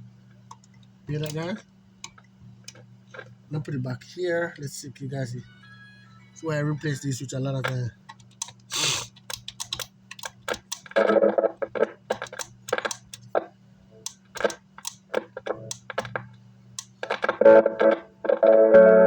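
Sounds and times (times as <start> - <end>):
steady low hum: 0.0 - 19.0
speaker crackling and popping: 10.3 - 19.0.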